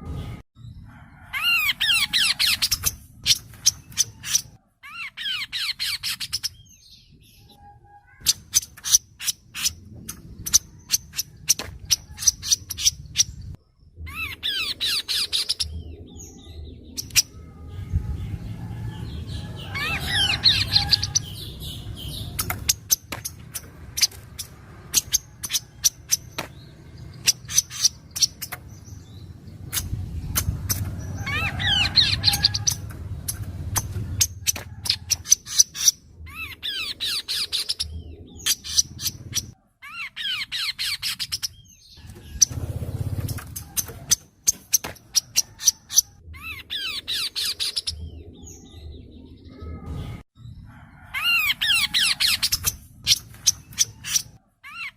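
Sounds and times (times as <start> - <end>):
bird song clicking and chattering: 2.0 - 4.6, 8.2 - 13.3, 16.9 - 17.4, 20.2 - 39.6.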